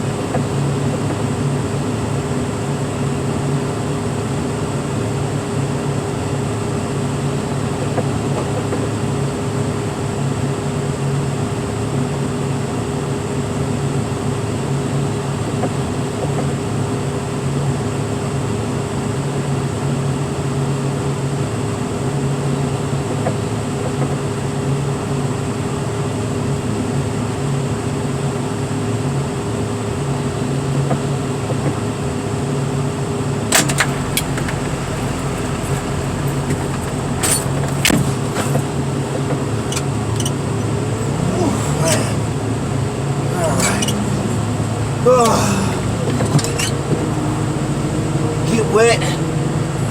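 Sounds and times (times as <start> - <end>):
heavy equipment engine droning: 30.0 - 49.9.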